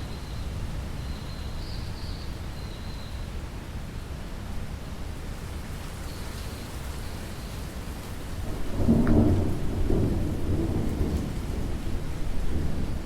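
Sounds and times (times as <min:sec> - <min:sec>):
steady rain: 0:03.2 - 0:13.0
thunder rumbling: 0:08.4 - 0:13.0.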